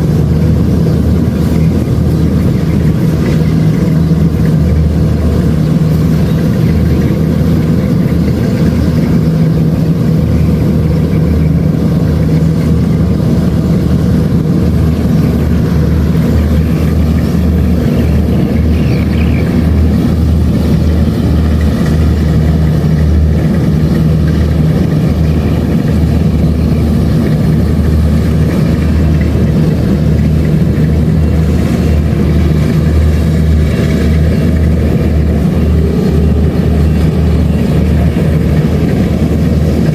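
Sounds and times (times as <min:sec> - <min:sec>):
combine harvester engine droning: 0:00.0 - 0:39.9.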